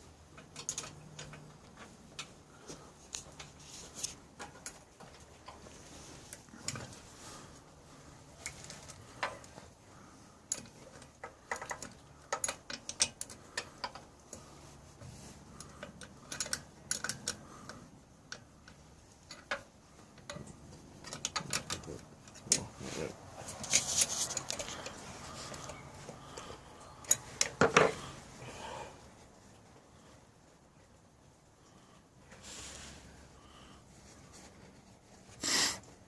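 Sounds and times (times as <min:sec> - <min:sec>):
hand tools clicking and tapping: 0:00.3 - 0:02.3, 0:10.5 - 0:14.5, 0:15.6 - 0:22.7.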